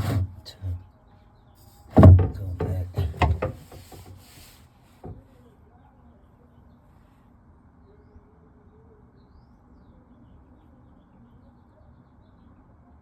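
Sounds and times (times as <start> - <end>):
light knock: 1.9 - 4.2.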